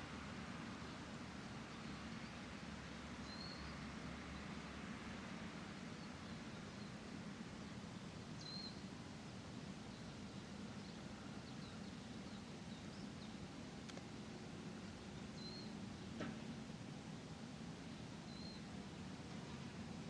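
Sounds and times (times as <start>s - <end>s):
small birds chirping: 3.2s - 3.8s, 8.4s - 8.9s, 9.9s - 14.0s, 14.8s - 16.0s, 17.9s - 18.7s.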